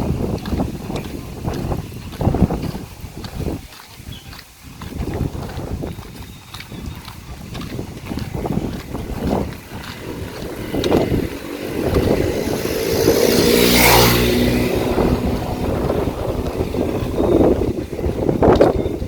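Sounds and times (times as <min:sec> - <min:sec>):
motor vehicle driving past: 0:09.4 - 0:18.6.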